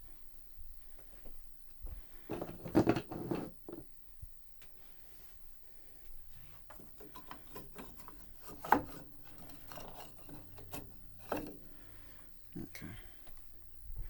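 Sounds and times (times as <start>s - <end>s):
wooden piano parts rubbed: 2.3s - 3.8s, 6.3s - 12.7s.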